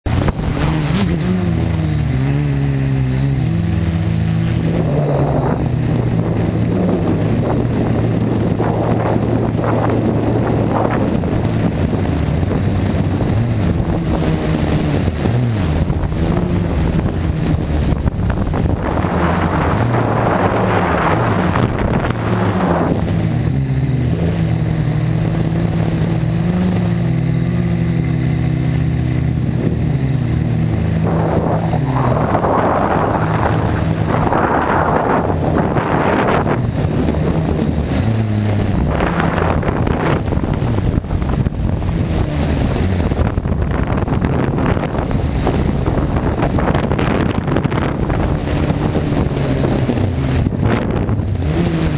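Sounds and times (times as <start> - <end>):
gusts of rushing noise: 0.0 - 51.9
quadcopter motors buzzing: 0.1 - 51.9.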